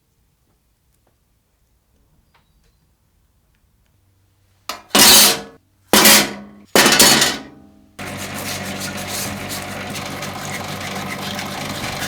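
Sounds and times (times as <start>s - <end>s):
power tool running: 8.0s - 12.0s.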